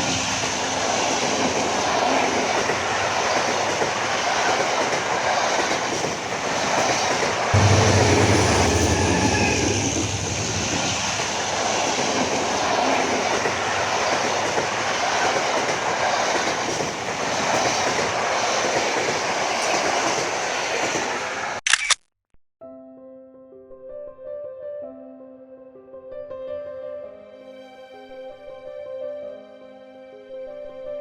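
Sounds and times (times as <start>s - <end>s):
train wheels on rails: 0.0s - 21.6s
soft piano music: 22.6s - 31.0s.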